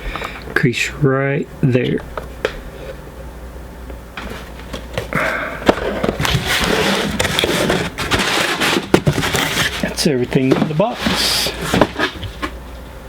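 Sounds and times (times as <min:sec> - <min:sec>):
packaging rustling and crinkling: 0:04.2 - 0:12.6.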